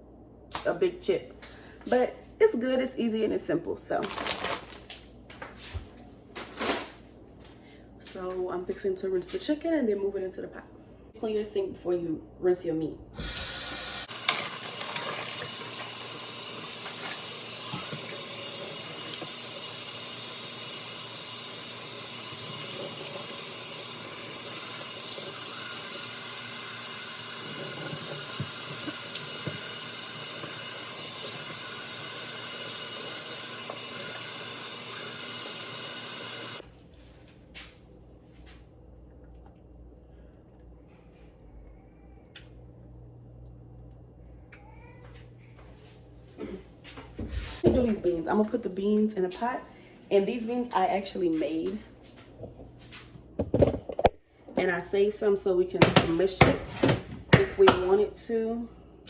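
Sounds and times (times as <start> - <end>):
tap water running: 13.2 - 36.6.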